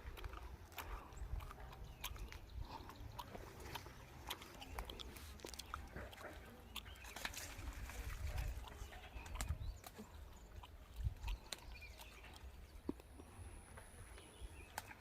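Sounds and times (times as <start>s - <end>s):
wind rumble on microphone: 7.5s - 9.9s.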